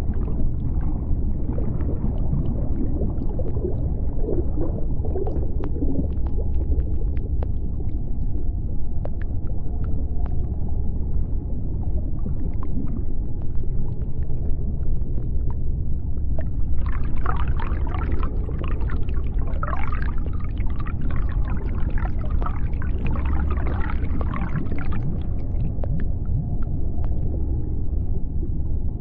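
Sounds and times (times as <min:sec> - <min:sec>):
deep underwater rumble: 0:00.0 - 0:29.0
underwater clicks: 0:05.2 - 0:08.1.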